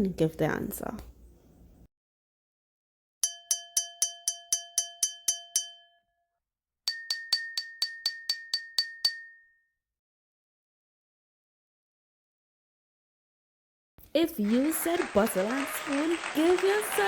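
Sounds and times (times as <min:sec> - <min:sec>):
spoon striking glass bottle: 0:03.2 - 0:06.1, 0:06.9 - 0:09.6.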